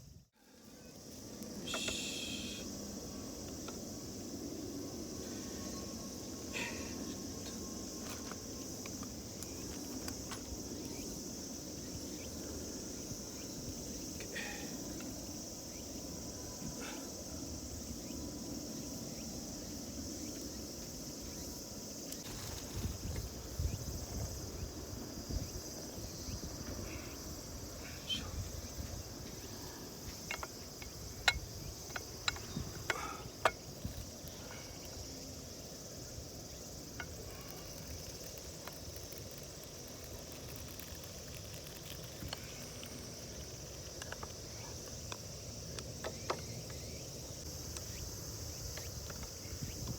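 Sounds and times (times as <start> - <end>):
insects trilling: 0.0 - 49.9.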